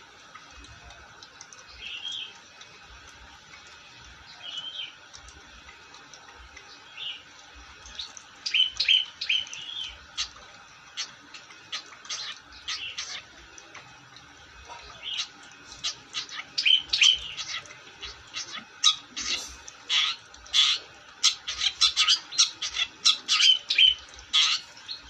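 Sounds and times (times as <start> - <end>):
bird chirping song: 1.7 - 2.4, 4.3 - 5.0, 7.9 - 10.4, 14.8 - 25.0.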